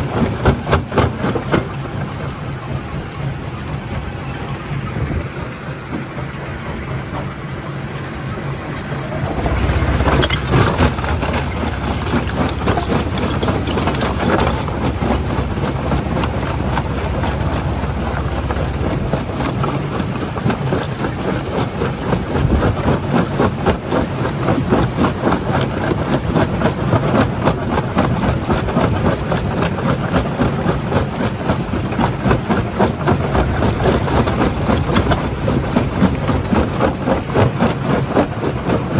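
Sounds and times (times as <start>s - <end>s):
machine rumble: 0.0s - 38.9s
stone rattling and knocking: 9.4s - 14.9s.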